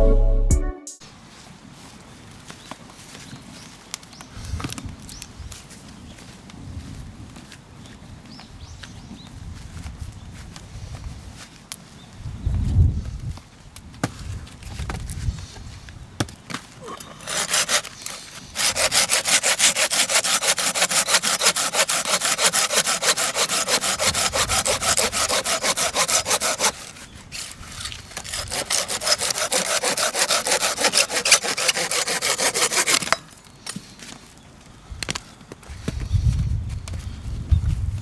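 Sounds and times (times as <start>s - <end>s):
hand saw cutting wood: 16.8s - 33.8s.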